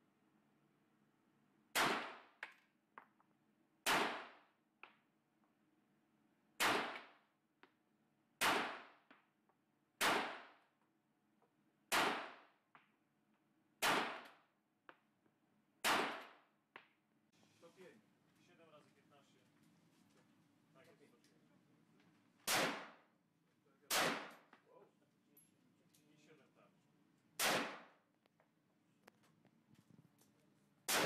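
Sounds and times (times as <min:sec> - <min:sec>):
gunshots: 0:01.7 - 0:02.3, 0:03.8 - 0:04.4, 0:06.6 - 0:07.2, 0:08.4 - 0:09.0, 0:10.0 - 0:10.6, 0:11.9 - 0:12.5, 0:13.8 - 0:14.4, 0:15.8 - 0:16.4, 0:22.4 - 0:23.0, 0:23.9 - 0:24.5, 0:27.4 - 0:28.0.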